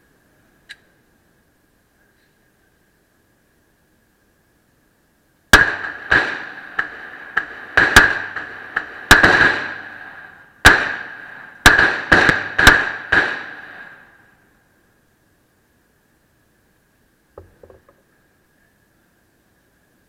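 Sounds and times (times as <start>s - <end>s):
pistol shots echoing: 5.5s - 14.1s.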